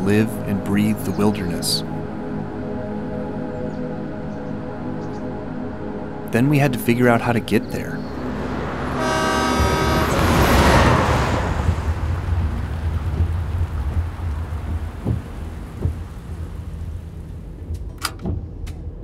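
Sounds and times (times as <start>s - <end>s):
car driving on wet road: 8.1s - 17.7s
thunder rumble: 8.1s - 19.0s
rain: 8.2s - 18.1s.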